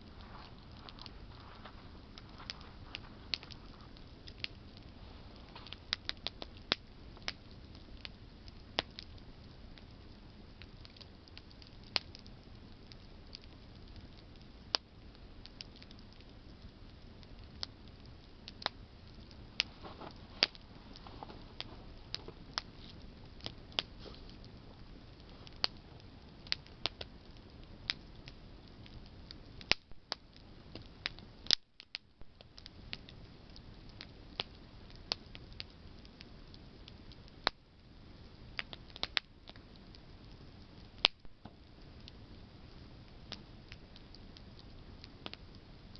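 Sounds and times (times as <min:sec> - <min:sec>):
faint steady rush: 0:00.0 - 0:10.5, 0:16.0 - 0:29.6
campfire crackling and popping: 0:00.0 - 0:45.9.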